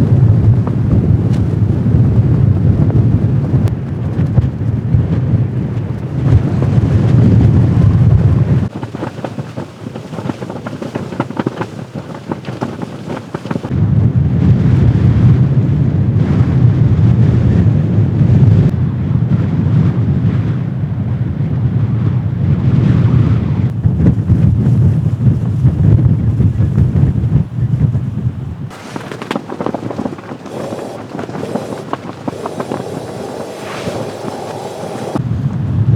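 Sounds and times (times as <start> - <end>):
blizzard wind buffeting microphone: 0.0 - 35.9
rapid fluttering ticks: 8.7 - 13.7, 28.7 - 35.2.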